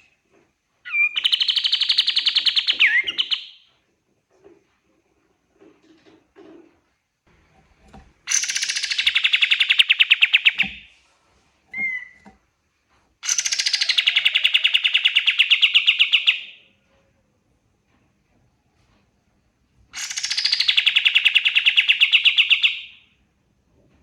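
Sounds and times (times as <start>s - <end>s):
bird chirp: 0.9s - 3.7s, 8.2s - 10.9s, 11.7s - 12.2s, 13.2s - 16.7s, 20.0s - 23.1s
bird trilling: 8.3s - 10.8s.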